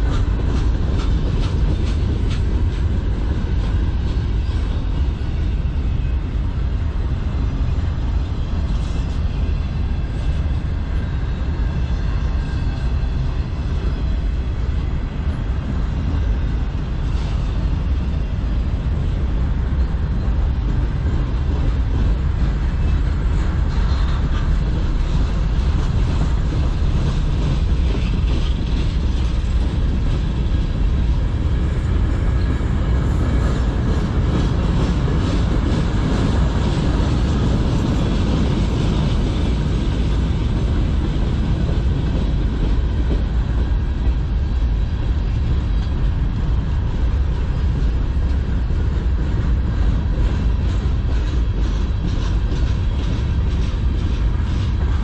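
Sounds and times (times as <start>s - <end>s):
steel wheels rumbling on rails: 0.0s - 55.0s
wheels clacking over rail joints: 8.6s - 55.0s.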